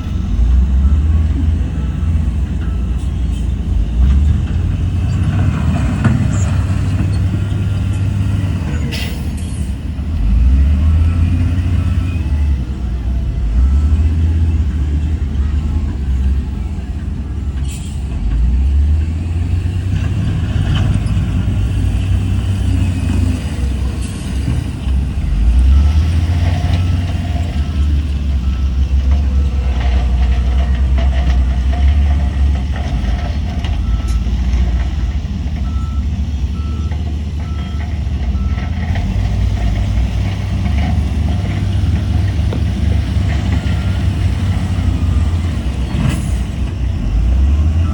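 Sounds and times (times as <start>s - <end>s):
diesel machinery rumbling: 0.0s - 47.9s
reversing alarm beeping: 25.5s - 30.3s, 35.6s - 38.7s, 43.3s - 46.4s.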